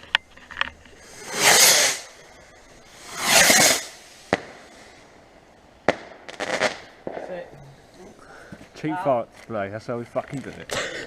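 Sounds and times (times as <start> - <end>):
firework crackling: 0.0 - 8.0
firework whooshes: 0.9 - 7.4
firework bangs: 0.9 - 7.5.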